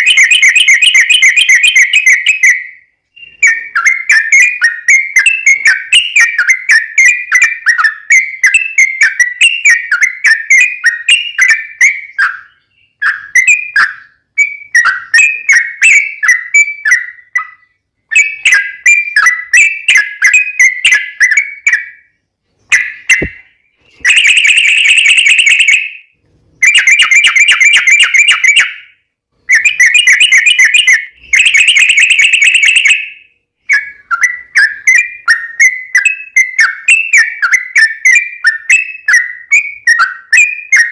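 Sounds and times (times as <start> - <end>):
rapid bird trills: 0.0 - 26.0
bulbul chirping song: 0.0 - 40.9.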